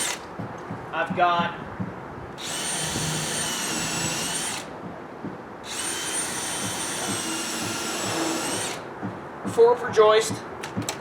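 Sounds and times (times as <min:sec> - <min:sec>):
cordless drill whining: 0:00.0 - 0:00.2, 0:02.4 - 0:04.7, 0:05.6 - 0:08.8.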